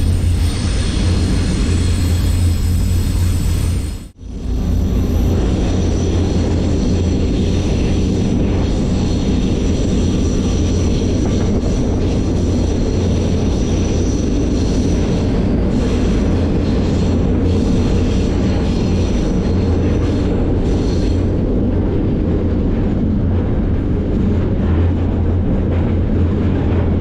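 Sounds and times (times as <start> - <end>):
deep hum: 0.0 - 7.2
train wheels rumbling on rail: 0.0 - 27.0.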